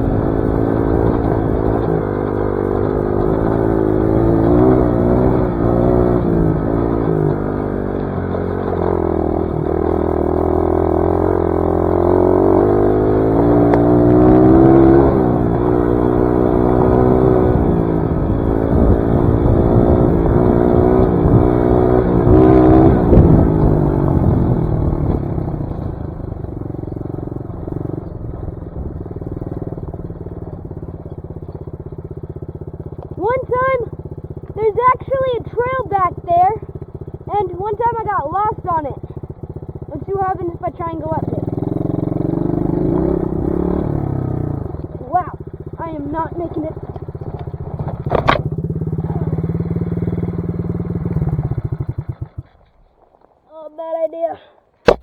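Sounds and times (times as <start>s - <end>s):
dirt bike engine revving: 0.0s - 28.0s, 33.2s - 52.6s
bike knocks and clatter: 46.9s - 48.8s.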